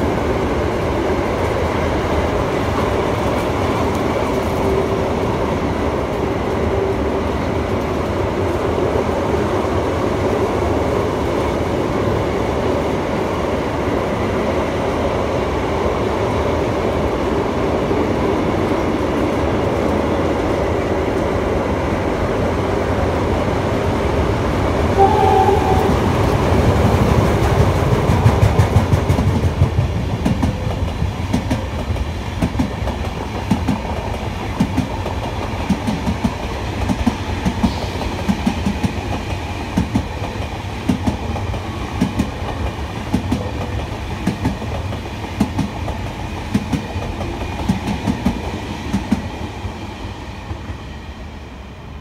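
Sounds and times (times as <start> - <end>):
train wheels clickety-clack: 0.0 - 11.7, 25.1 - 51.0
freight train rumble: 0.0 - 52.0.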